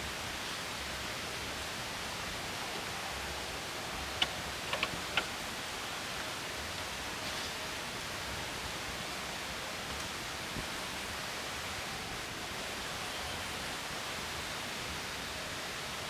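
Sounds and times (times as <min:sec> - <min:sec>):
outdoor ambience hiss: 0:00.0 - 0:16.0.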